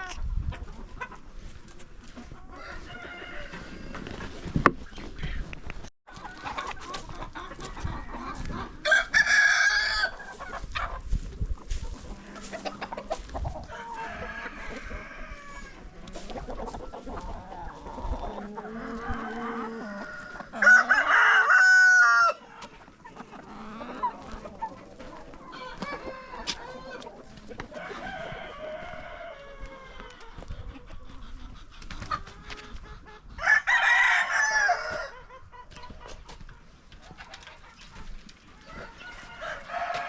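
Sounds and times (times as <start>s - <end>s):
chickens clucking: 0.0s - 40.0s
rooster crowing: 2.6s - 3.9s, 8.8s - 10.2s, 13.7s - 15.8s, 18.7s - 22.4s, 33.4s - 35.2s, 38.7s - 40.0s.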